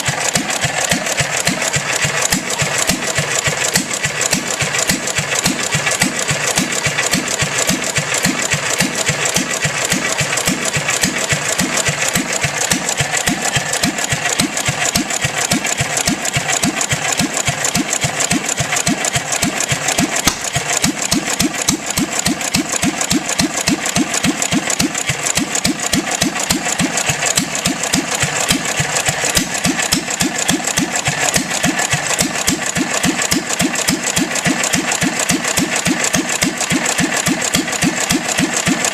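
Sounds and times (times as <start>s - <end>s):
stationary gas engine running: 0.0s - 38.9s.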